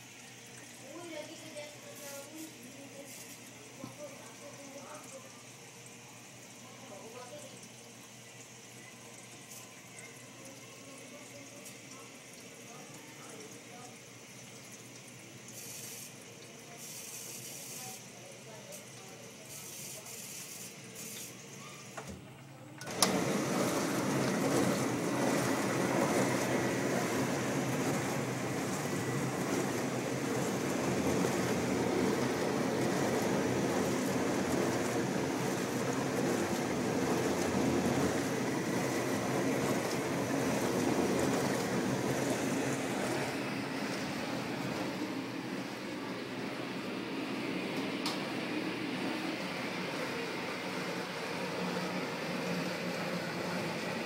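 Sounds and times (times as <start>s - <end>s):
water spraying inside dishwasher: 0.0s - 54.0s
low pump hum: 20.8s - 54.0s.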